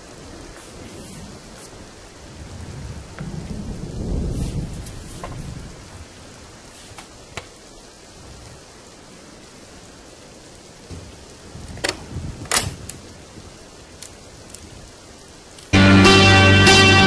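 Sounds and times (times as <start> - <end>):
low rumble: 0.0 - 6.6
rain hissing: 0.0 - 17.0.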